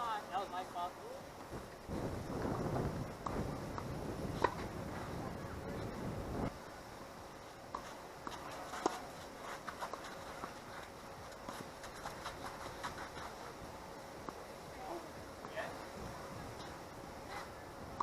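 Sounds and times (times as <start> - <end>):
wind buffeting microphone: 1.4 - 6.6.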